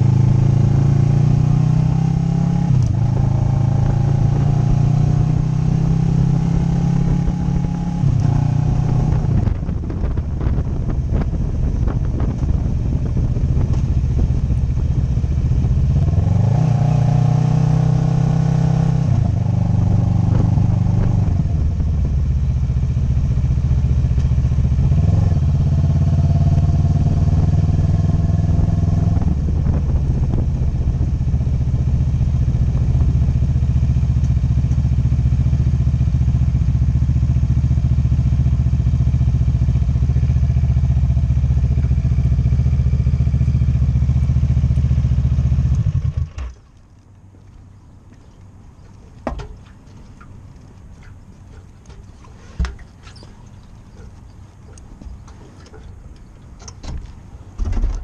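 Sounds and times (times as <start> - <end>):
motorcycle engine revving: 0.0 - 46.6.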